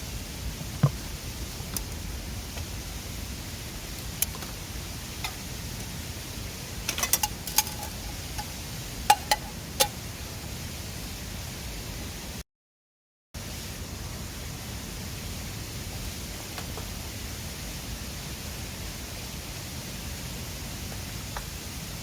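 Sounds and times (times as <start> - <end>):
campfire crackling and popping: 3.8 - 6.0, 6.8 - 10.0.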